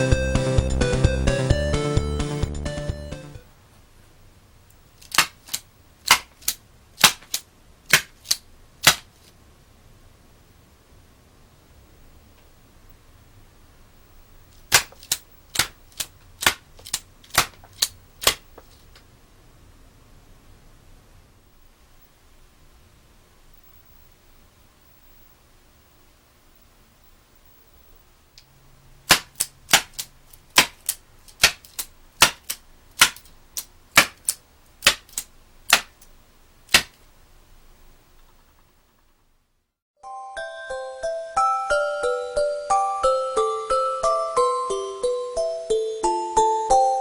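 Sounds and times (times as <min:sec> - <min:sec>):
mechanism clicking: 0:05.0 - 0:09.0, 0:14.5 - 0:18.4, 0:29.1 - 0:36.1
rubber-band pistol snapping: 0:05.0 - 0:09.1, 0:14.6 - 0:18.5, 0:29.1 - 0:36.1, 0:36.7 - 0:37.0.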